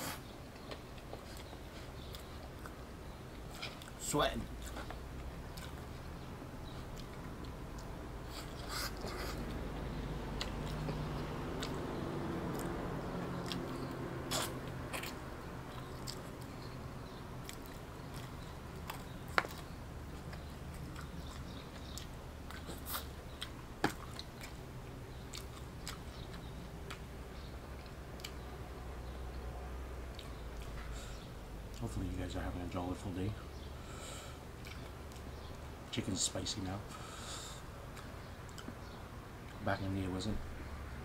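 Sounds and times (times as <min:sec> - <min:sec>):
low steady hum: 0:00.0 - 0:41.0
chewing crispy fried chicken: 0:04.6 - 0:29.2, 0:34.5 - 0:35.6
wet mouth clicks: 0:13.4 - 0:15.2.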